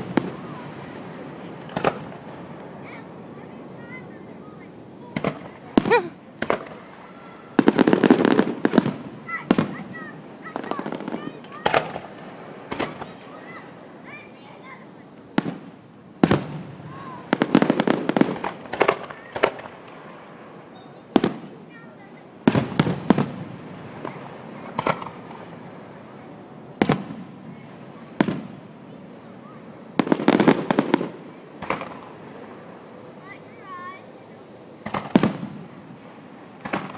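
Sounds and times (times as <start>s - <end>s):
firecracker pops: 0.0s - 13.6s, 15.4s - 20.1s, 20.8s - 25.6s, 26.7s - 28.7s, 29.4s - 32.2s, 34.8s - 35.8s, 36.6s - 36.9s
firework bangs: 0.0s - 36.9s.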